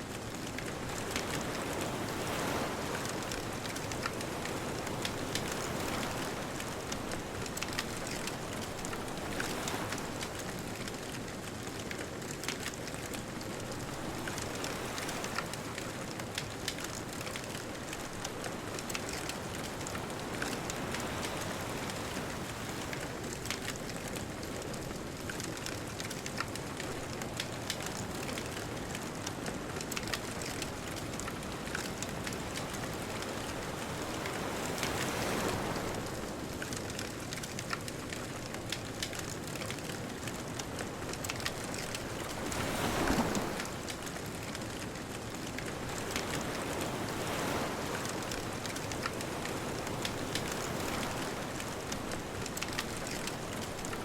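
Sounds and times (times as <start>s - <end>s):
bonfire crackling: 0.1s - 54.0s
distant ocean surf: 0.8s - 11.5s, 29.9s - 37.8s, 38.8s - 54.0s
wave breaking: 42.3s - 43.8s.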